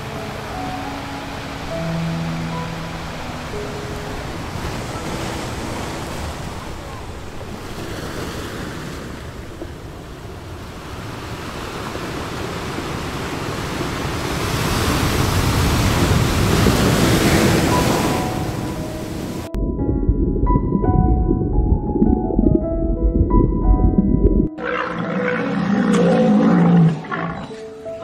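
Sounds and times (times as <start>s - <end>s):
rushing surf-like noise: 10.5s - 19.5s.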